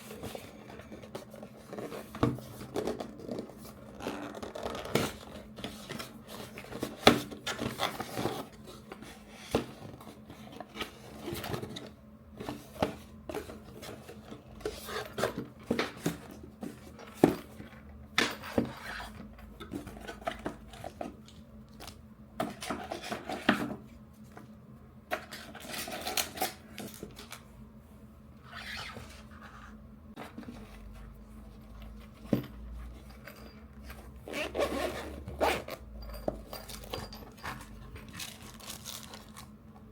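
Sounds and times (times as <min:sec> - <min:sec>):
packaging rustling: 0:36.6 - 0:39.6.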